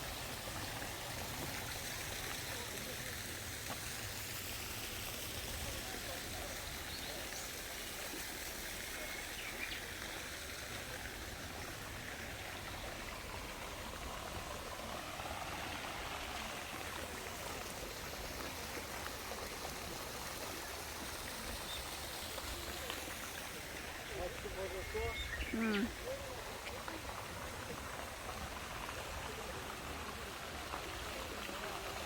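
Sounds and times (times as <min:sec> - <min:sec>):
running water: 0:00.0 - 0:32.0.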